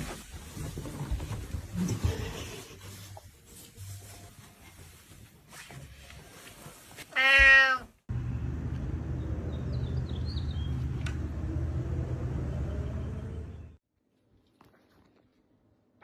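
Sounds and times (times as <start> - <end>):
cat meowing: 7.1 - 8.0.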